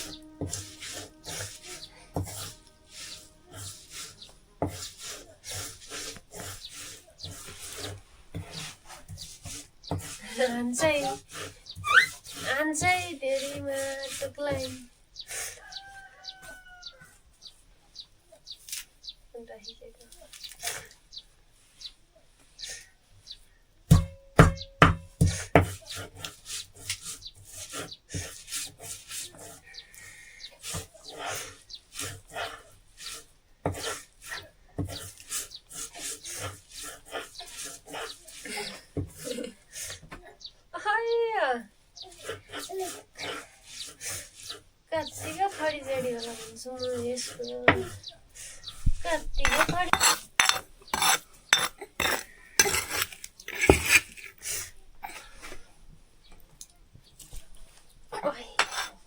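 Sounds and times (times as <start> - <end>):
light knocking and rubbing: 0.0 - 14.9, 31.7 - 40.2, 42.9 - 54.4
rhythmic scraping strokes: 0.0 - 15.0, 30.4 - 39.5, 41.1 - 54.3
hard ringing knocks: 23.9 - 25.2.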